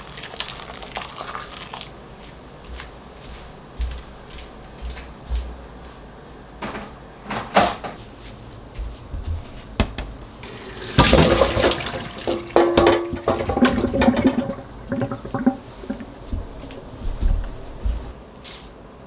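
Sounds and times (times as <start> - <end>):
tap water running into sink: 10.4 - 16.2.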